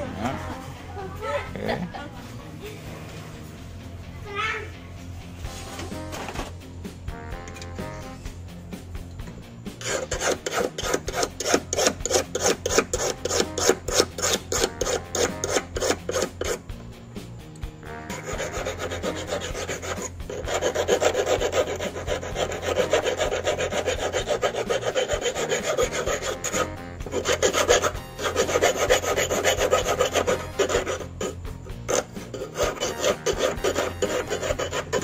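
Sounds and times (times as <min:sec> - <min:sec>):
hand file rasping on steel wire: 0:09.8 - 0:16.6, 0:18.0 - 0:35.0.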